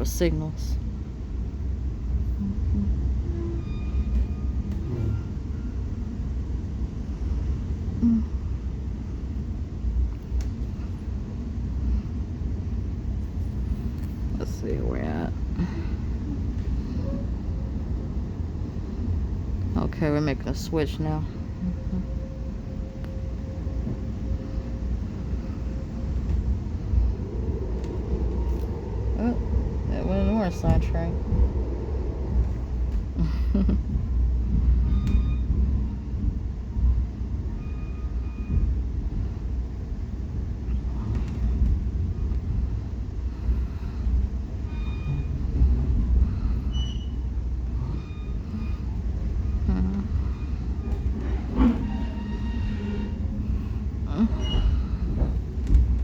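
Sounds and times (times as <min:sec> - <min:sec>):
train wheels rumbling on track: 0:00.0 - 0:56.0
faint steady whine: 0:13.4 - 0:40.0
high-pitched wheel squeals: 0:51.3 - 0:53.2.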